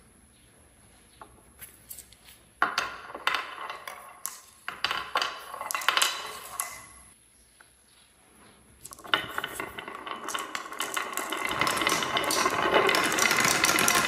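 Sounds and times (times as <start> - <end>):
marbles rattling down wooden track: 2.6 - 7.0, 8.9 - 14.0.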